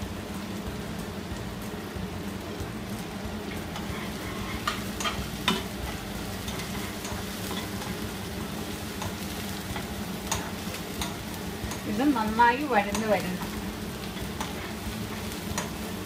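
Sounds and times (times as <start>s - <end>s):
food sizzling in a pan: 0.0s - 16.0s
spatula clicking against pan: 8.9s - 11.9s, 12.8s - 14.6s, 15.3s - 15.8s.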